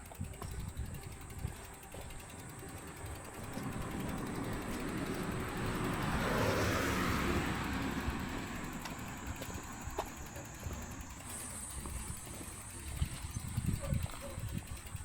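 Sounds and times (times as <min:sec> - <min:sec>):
car passing by: 0:03.4 - 0:11.2.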